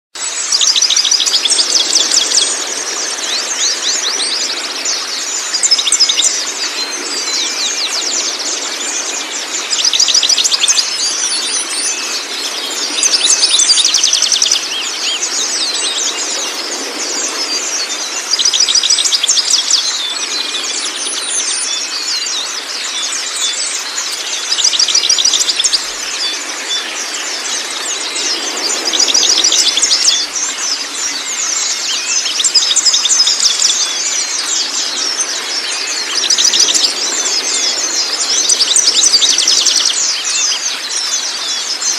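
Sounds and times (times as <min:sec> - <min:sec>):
running water: 0:00.2 - 0:41.9
songbird trilling: 0:17.3 - 0:41.9.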